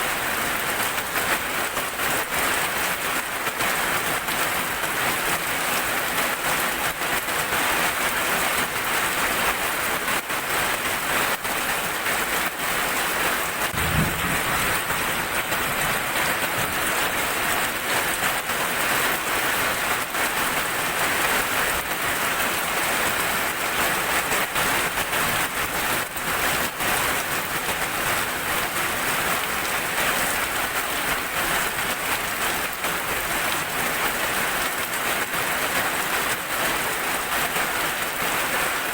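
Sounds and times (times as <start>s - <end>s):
heavy rain on hard surface: 0.0s - 38.9s
short low thump: 13.7s - 15.7s.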